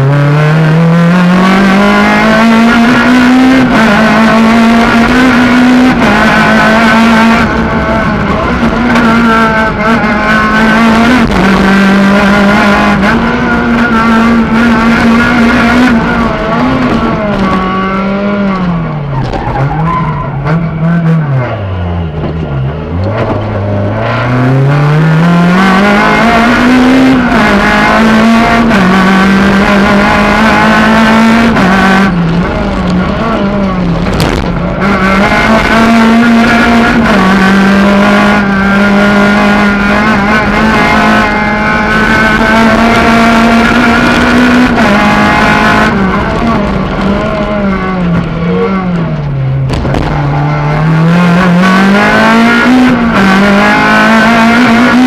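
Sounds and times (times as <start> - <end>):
rally car engine at high revs: 0.0 - 55.0.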